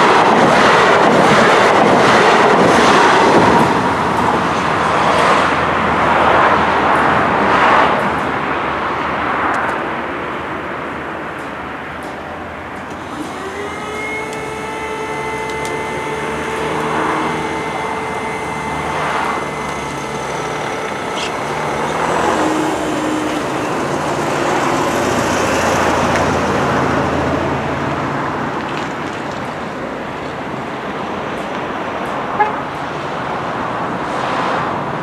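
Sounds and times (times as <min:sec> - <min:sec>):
steady whine with overtones: 0:00.0 - 0:09.2, 0:12.5 - 0:26.6
vehicles passing: 0:00.0 - 0:35.0.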